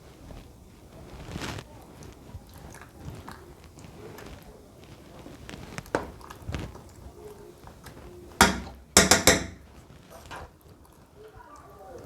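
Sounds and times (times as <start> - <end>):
sharp knocks: 8.4 - 9.6.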